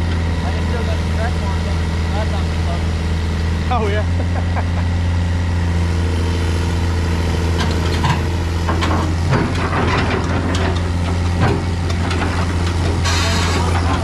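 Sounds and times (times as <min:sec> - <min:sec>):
diesel truck engine droning: 0:00.0 - 0:14.0
knocks and rattles: 0:07.6 - 0:14.0.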